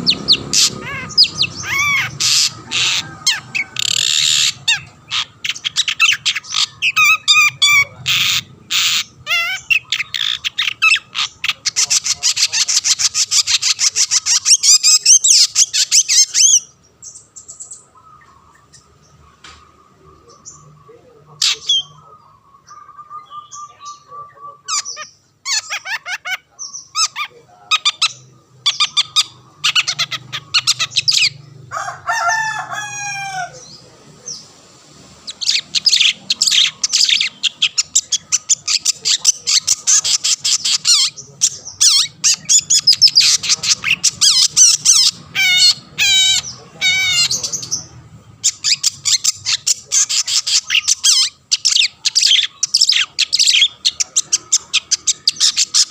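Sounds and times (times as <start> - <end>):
bird chirping and trilling: 0.0 - 55.9.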